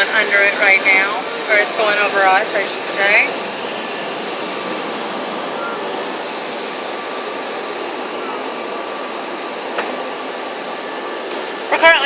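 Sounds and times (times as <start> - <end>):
car wash dryer blowing air: 0.0 - 12.0.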